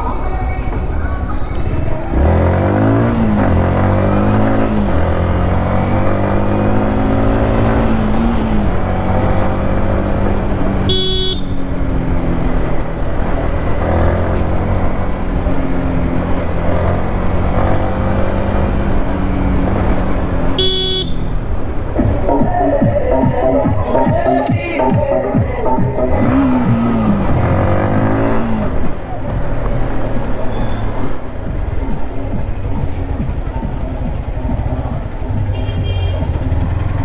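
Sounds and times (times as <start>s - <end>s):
rushing wind and road noise: 0.0s - 37.0s
motorcycle engine running: 1.7s - 24.2s, 25.0s - 37.0s
horn toots: 10.8s - 11.7s, 20.5s - 21.4s, 35.4s - 36.4s.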